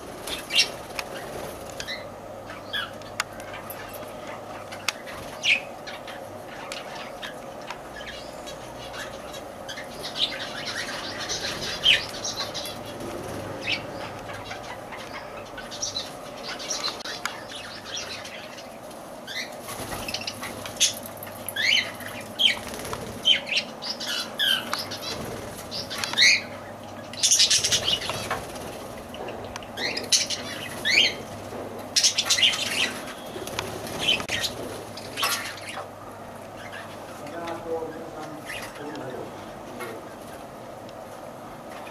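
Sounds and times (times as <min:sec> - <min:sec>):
wings flapping: 0:00.0 - 0:02.0, 0:11.3 - 0:13.9, 0:19.5 - 0:23.6, 0:24.4 - 0:26.3, 0:27.3 - 0:29.2, 0:32.1 - 0:35.4
birds chirping: 0:00.0 - 0:41.9.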